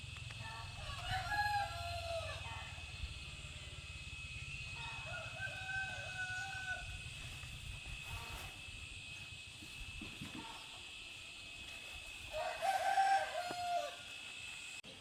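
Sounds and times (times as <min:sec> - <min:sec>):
rooster crowing: 0:00.4 - 0:03.7, 0:04.6 - 0:07.2, 0:12.3 - 0:14.3.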